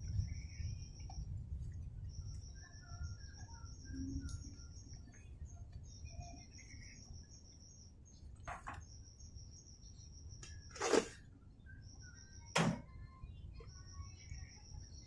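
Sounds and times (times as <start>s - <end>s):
high-pitched insect trill: 2.1s - 11.1s.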